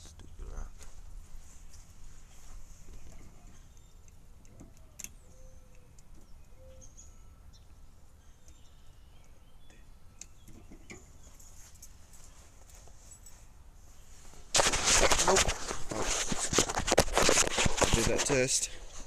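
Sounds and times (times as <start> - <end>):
faint bird calls: 2.8 - 11.6.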